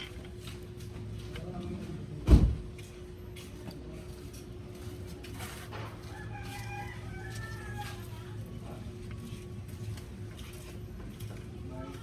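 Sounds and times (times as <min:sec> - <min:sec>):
steady low hum: 0:00.0 - 0:12.0
rooster crowing: 0:06.0 - 0:08.2.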